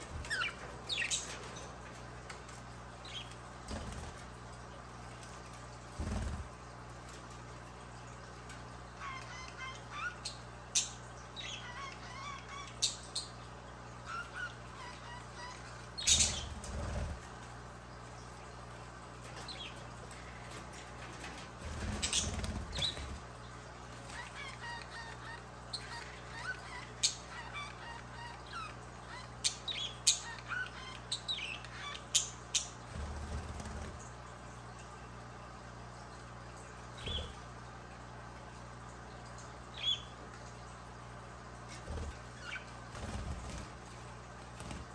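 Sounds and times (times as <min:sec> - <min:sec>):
budgerigars chirping and chattering: 0:00.0 - 0:01.6, 0:14.0 - 0:17.2, 0:21.3 - 0:23.2, 0:24.1 - 0:32.8, 0:37.0 - 0:37.4.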